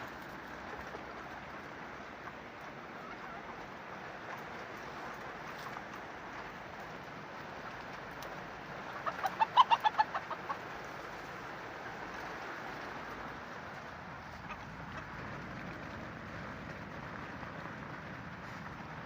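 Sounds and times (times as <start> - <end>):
chicken clucking: 2.2 - 3.8, 8.9 - 10.8, 14.2 - 15.2.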